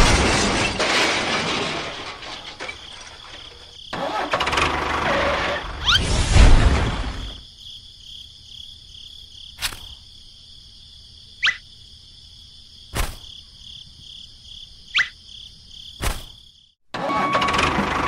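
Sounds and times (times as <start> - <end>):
insect trill: 2.7 - 4.2, 7.3 - 16.8.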